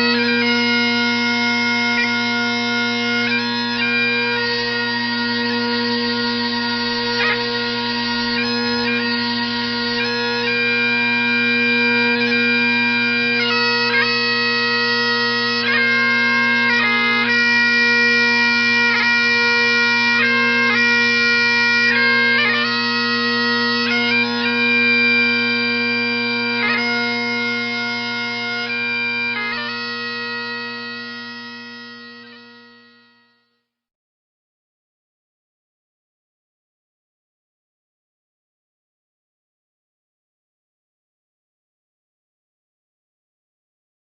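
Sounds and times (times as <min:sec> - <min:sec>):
bagpipes playing slow tune: 0:00.0 - 0:33.6.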